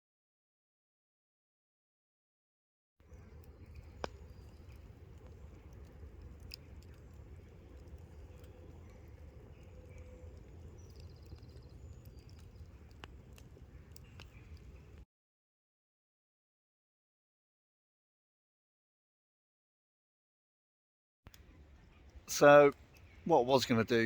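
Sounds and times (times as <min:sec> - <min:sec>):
campfire crackling and popping: 0:03.0 - 0:15.0, 0:21.3 - 0:24.0
low steady rumble: 0:03.0 - 0:15.0.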